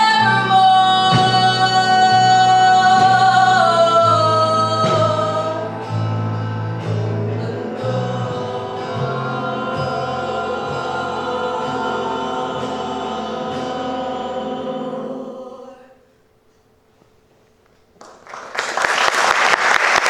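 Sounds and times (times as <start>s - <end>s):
low accompaniment: 0.0s - 15.8s
choir singing held chords: 0.0s - 16.2s.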